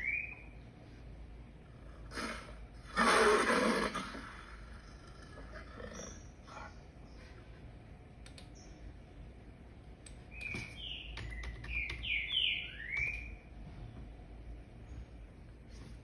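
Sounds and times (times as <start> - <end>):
bird chirping: 0.0 - 0.7, 8.3 - 9.1, 10.1 - 15.3
faint clicks: 8.2 - 8.6.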